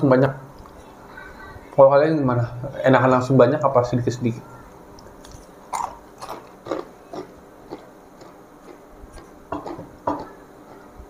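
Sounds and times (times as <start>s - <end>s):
peanuts being chewed: 5.0s - 10.9s.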